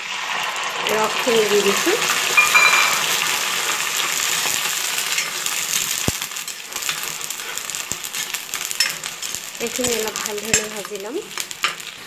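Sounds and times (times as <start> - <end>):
paste sizzling in oil: 0.0 - 12.0
spatula knocking on pan: 2.4 - 3.2.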